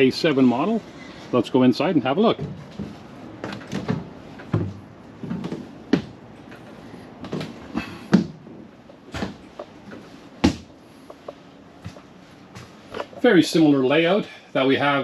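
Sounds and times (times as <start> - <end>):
footfalls on entry steps: 10.4 - 10.8.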